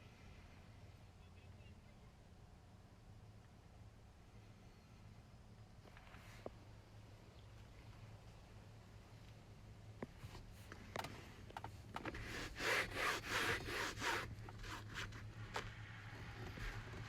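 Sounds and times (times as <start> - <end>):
scrubbing upholstery: 12.2 - 15.4.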